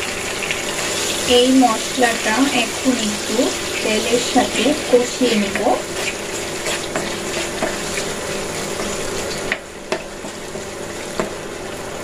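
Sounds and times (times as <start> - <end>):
paste sizzling in hot oil: 0.0 - 12.0
spatula scraping and tapping pan: 4.4 - 11.4.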